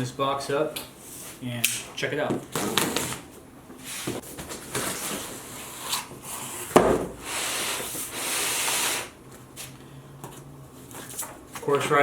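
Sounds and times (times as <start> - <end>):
cardboard rustling and scraping: 2.5 - 6.8.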